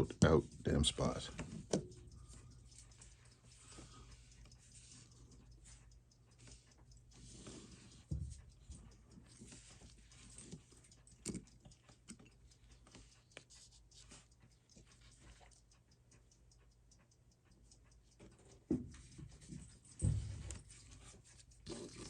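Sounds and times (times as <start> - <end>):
small tool clicks and taps: 1.3 - 22.0.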